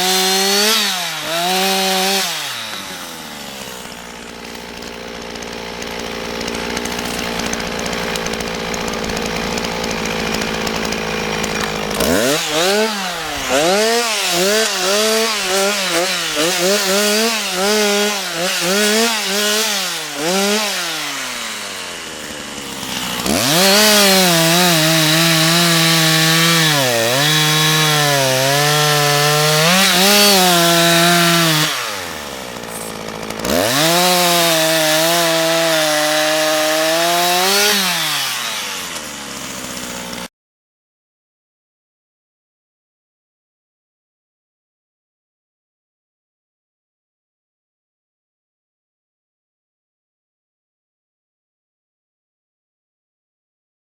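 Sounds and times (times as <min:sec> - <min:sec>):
chainsaw cutting wood: 0:00.0 - 0:40.3.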